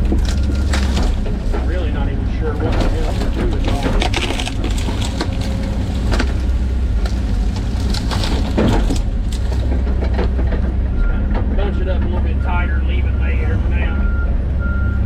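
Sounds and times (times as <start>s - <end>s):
sharp cracks and knocks: 0.0s - 1.8s, 2.7s - 10.8s
excavator diesel engine running: 0.0s - 15.0s.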